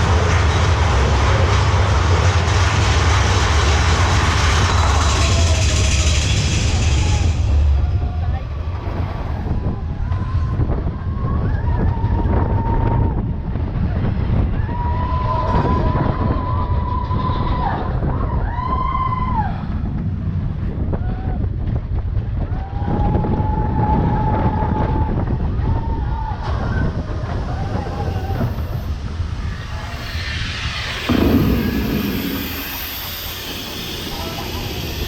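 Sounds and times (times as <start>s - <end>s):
roller coaster cars rumbling: 0.0s - 35.0s
high squeals: 27.7s - 35.0s.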